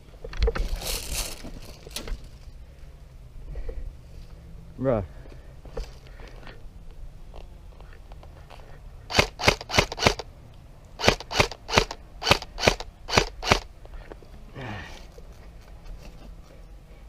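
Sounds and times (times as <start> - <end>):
airsoft gun shots: 9.1 - 10.2, 11.0 - 13.7.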